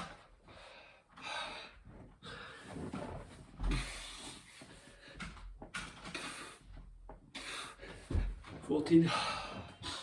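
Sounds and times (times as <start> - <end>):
man breathing hard: 0.4 - 2.9, 3.6 - 8.4, 9.0 - 10.0
body thudding on floor: 8.0 - 8.7.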